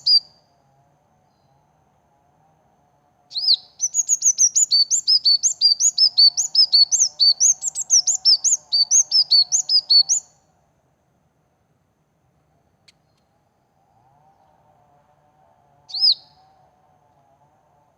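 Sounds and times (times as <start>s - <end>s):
songbird chirping: 0.0s - 0.5s, 3.3s - 10.5s, 12.4s - 14.7s, 15.8s - 17.2s.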